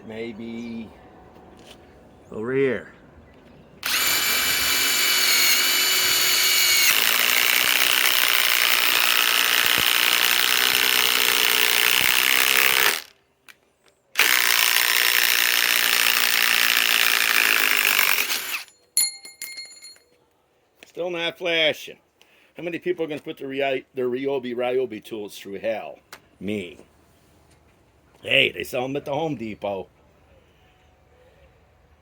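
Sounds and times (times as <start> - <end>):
impact wrench whining and hammering: 3.8 - 13.2, 14.2 - 20.0.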